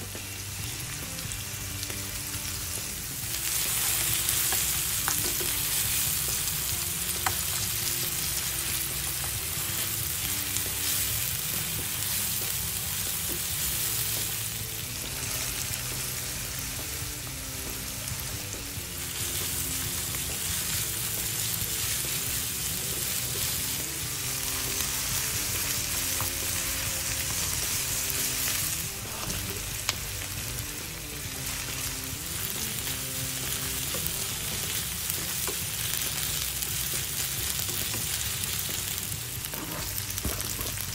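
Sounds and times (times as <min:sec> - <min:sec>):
food sizzling in oil: 0:00.0 - 0:40.9.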